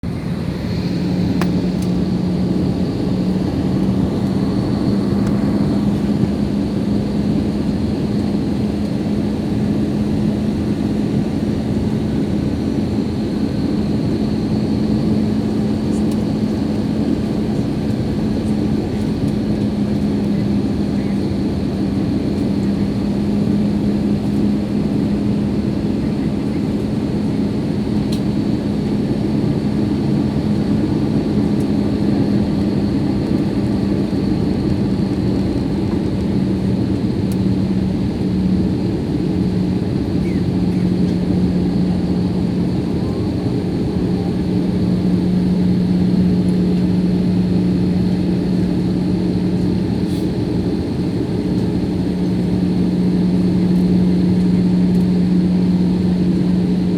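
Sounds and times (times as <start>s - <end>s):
low cabin drone: 0.0s - 11.9s, 27.9s - 56.9s
jet engine and airflow rush: 0.0s - 56.9s.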